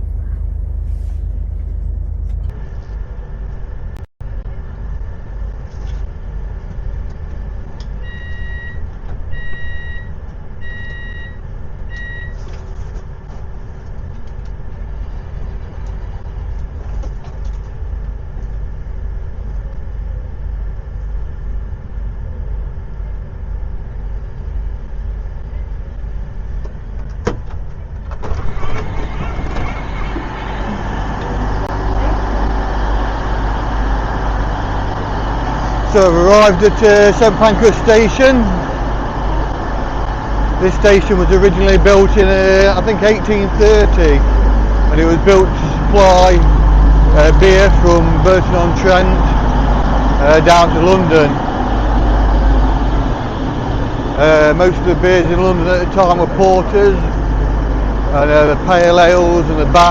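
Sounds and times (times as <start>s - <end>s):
moving train rumble: 0.0s - 59.9s
electronic warning beeps: 8.0s - 12.4s.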